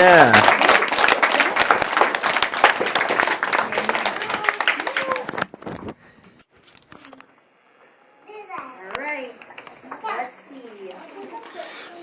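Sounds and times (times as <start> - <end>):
people cheering: 0.0 - 5.5
people clapping fast: 0.0 - 5.6.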